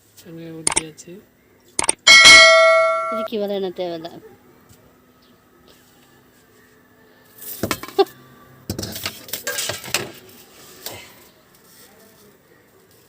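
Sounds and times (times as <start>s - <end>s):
cookware and metal utensils clattering: 8.7s - 10.2s.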